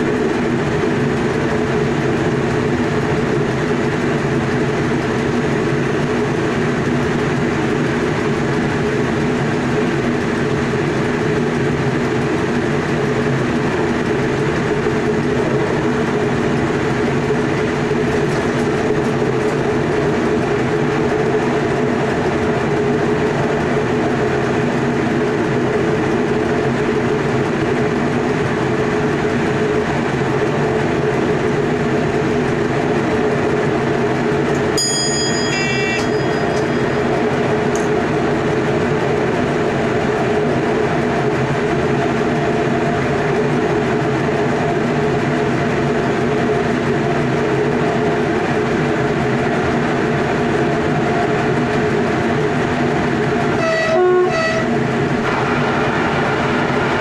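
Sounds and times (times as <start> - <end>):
train wheels rumbling on rail: 0.0 - 57.0
multi-tone hum: 32.9 - 40.4, 49.8 - 57.0
short ringing bell tone: 34.8 - 37.3.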